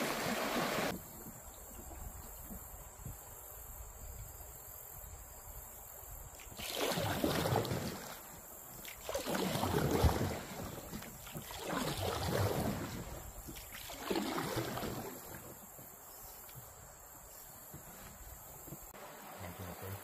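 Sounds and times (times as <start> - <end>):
paddle strokes swishing water: 0.0 - 2.9, 6.3 - 20.0.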